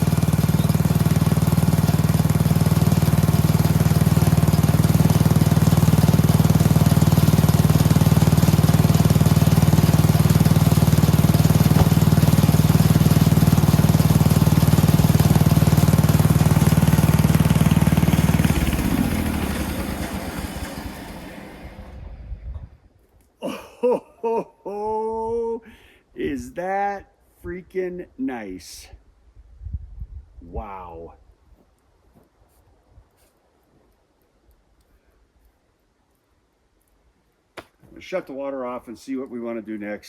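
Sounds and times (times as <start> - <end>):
sawmill gasoline engine running: 0.0 - 22.2.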